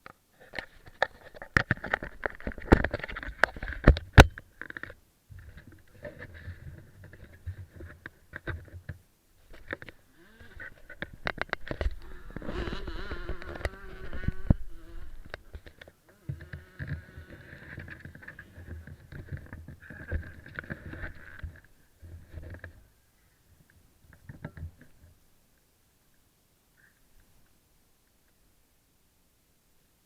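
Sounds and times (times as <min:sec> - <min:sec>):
small motorbike engine revving: 0:10.2 - 0:10.7, 0:11.9 - 0:15.4, 0:16.1 - 0:17.8.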